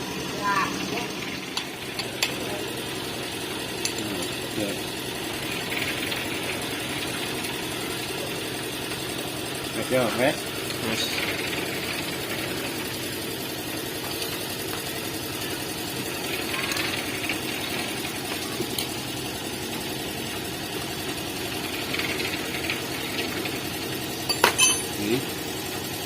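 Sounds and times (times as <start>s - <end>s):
machine droning: 0.0s - 26.0s
metallic clink: 24.3s - 25.0s.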